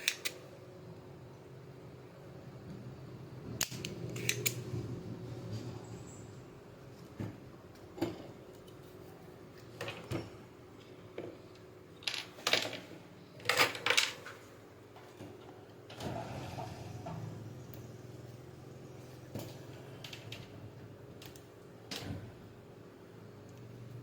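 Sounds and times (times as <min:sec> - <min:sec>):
hand tools clicking and scraping: 0:00.0 - 0:00.4, 0:03.8 - 0:04.6.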